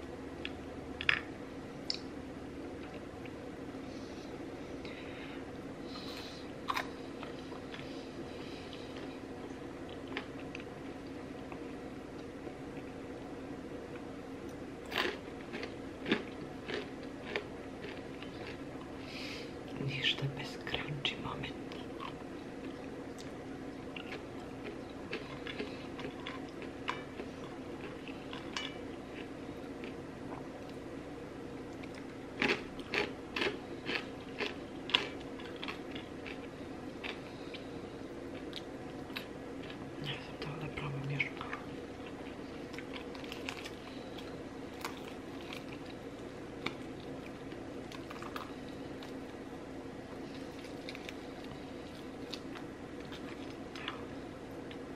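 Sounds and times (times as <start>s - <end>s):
steady low hum: 0.0s - 54.9s
chewing fried chicken crunches: 9.8s - 11.6s, 14.8s - 18.9s, 21.8s - 30.8s, 31.7s - 37.7s, 41.5s - 49.4s, 50.1s - 54.9s.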